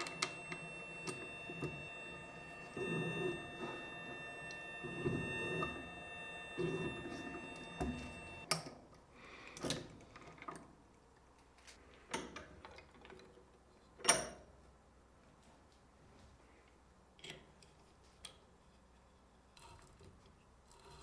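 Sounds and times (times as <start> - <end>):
lathe motor whine: 0.0 - 8.4.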